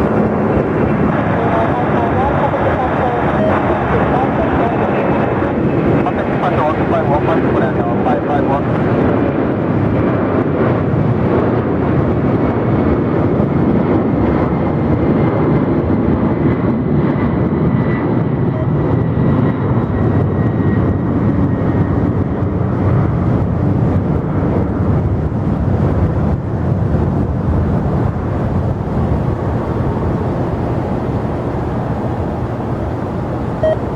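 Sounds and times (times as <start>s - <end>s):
jet engines running: 0.0s - 33.9s
faint high whine: 29.3s - 33.9s.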